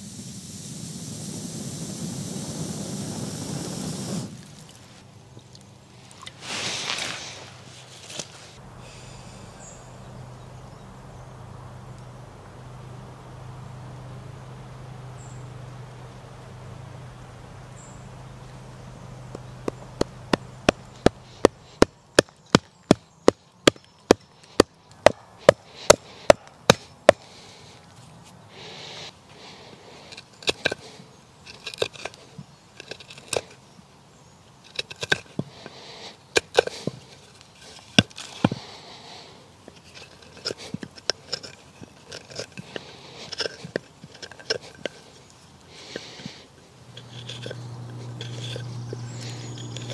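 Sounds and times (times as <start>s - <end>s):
low hum: 7.2s - 22.1s, 46.7s - 49.9s
clinks and scraping: 30.1s - 33.6s, 34.6s - 35.8s, 36.4s - 38.6s, 39.6s - 49.9s.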